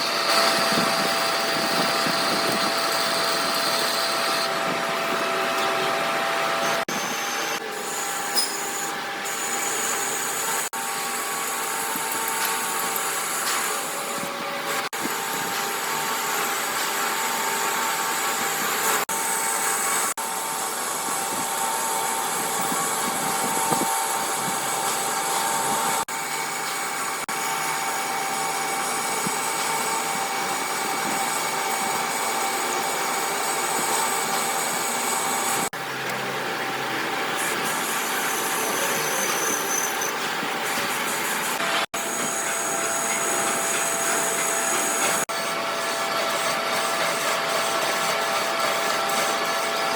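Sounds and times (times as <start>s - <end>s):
workshop machine hissing and whining: 0.0s - 49.9s.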